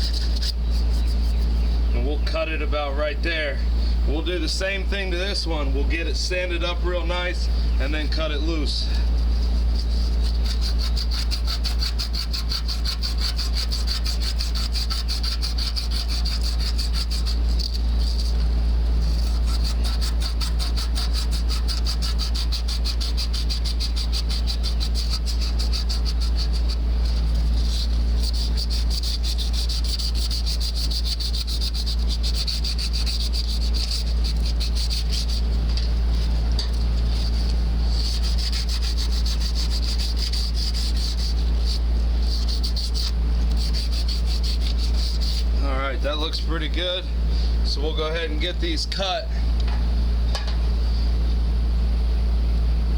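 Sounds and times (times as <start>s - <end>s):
sanding copper pipe: 0.0s - 1.6s, 6.0s - 46.9s
steady low hum: 0.0s - 52.9s.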